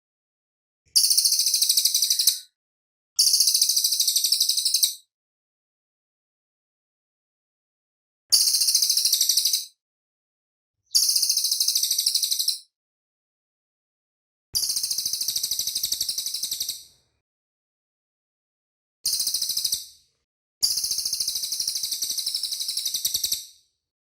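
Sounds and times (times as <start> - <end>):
songbird trilling: 1.0 - 2.4.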